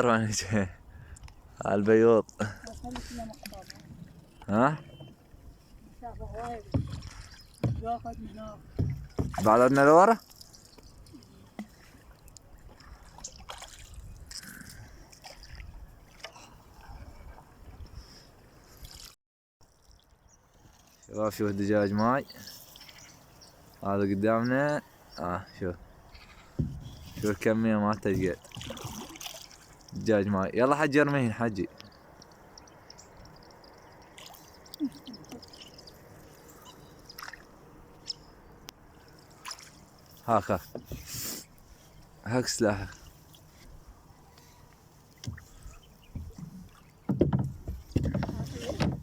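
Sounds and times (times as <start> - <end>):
water sloshing around a boat: 0.0 - 49.0
low falling bird calls: 31.7 - 39.4
high bird chirps: 31.8 - 37.2
light clicks and knocks: 46.1 - 49.0.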